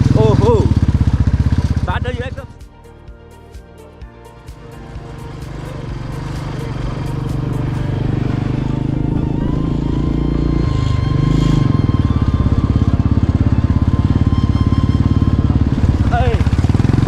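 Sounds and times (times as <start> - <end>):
single-cylinder motorcycle engine thumping: 0.0 - 2.3.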